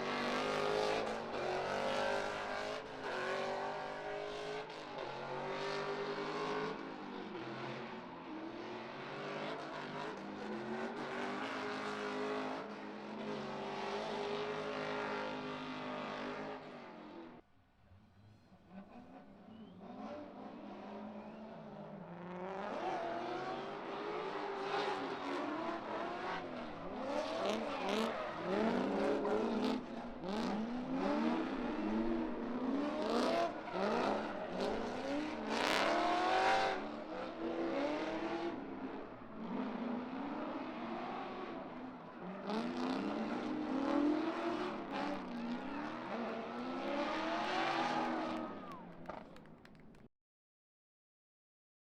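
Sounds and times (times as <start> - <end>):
car engines revving: 0.0 - 17.4, 18.6 - 50.0.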